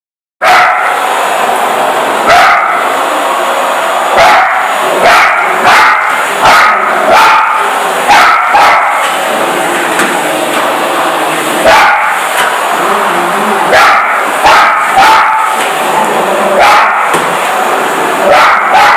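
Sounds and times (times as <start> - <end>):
dog barking: 0.4 - 1.0, 2.3 - 2.9, 4.2 - 9.1, 11.6 - 12.2, 13.6 - 15.6, 16.6 - 17.2, 18.2 - 18.9
vacuum cleaner motor: 0.8 - 18.7.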